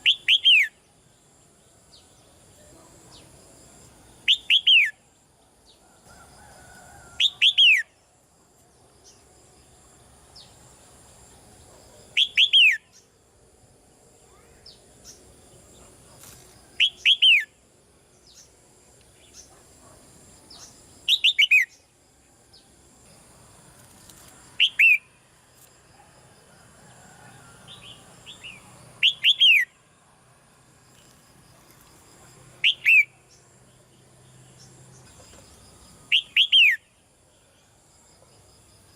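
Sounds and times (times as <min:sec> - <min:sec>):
bird whistled calls: 0:00.0 - 0:00.8, 0:04.3 - 0:05.0, 0:12.2 - 0:13.0, 0:24.6 - 0:25.0, 0:29.0 - 0:29.7, 0:32.6 - 0:33.1, 0:36.1 - 0:36.8.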